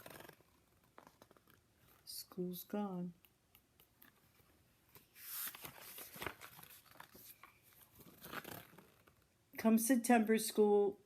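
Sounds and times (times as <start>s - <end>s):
book page turning rustle: 0.0s - 2.1s, 4.0s - 9.3s.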